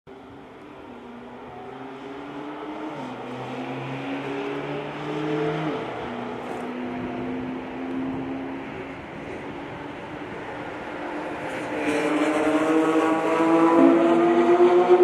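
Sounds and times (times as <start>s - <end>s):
car engine accelerating: 1.4s - 9.4s, 11.1s - 15.0s.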